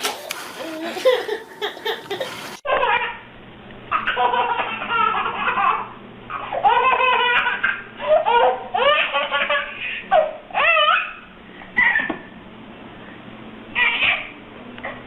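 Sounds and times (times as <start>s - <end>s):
young child laughing: 0.6s - 3.1s, 11.8s - 12.3s.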